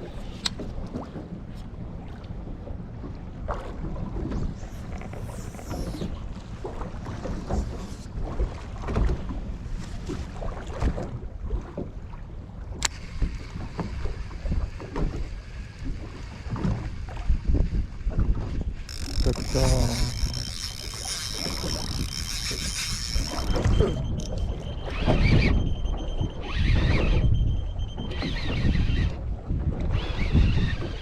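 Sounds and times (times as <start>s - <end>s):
water slapping against hull: 0.0s - 27.3s
wind buffeting microphone: 12.8s - 31.0s.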